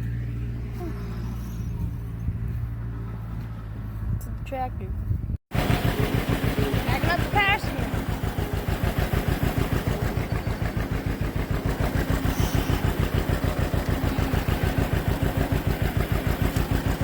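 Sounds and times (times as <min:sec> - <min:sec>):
tractor engine running: 0:05.5 - 0:17.0.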